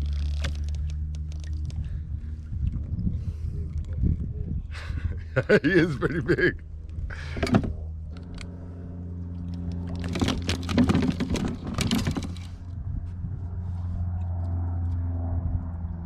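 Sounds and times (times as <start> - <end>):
vehicle engine humming: 0.0 - 16.0
rustling and handling noise: 9.6 - 12.7.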